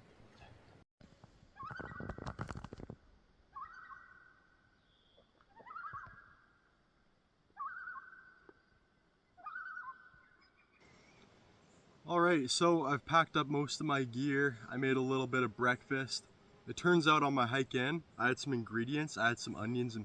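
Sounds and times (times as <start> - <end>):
rustling: 1.2 - 3.2
animal calling: 1.6 - 2.5, 3.5 - 6.7, 7.5 - 8.6, 9.4 - 11.2.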